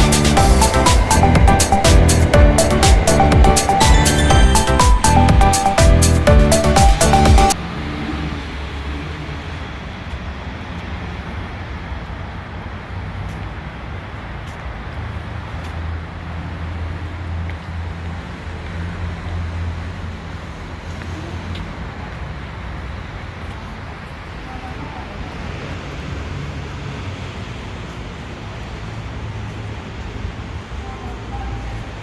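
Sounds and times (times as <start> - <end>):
train rumble inside carriage: 19.1 - 32.0.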